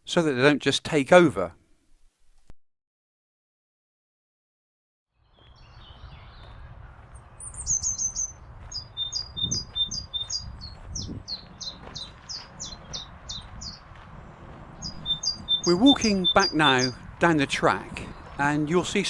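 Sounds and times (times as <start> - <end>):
songbirds singing: 7.3 - 13.9, 14.8 - 19.0.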